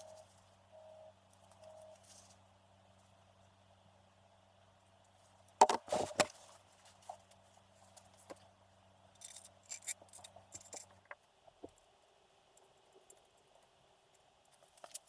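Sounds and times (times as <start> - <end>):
low steady hum: 0.0 - 15.0
metal parts clinking: 9.2 - 11.0.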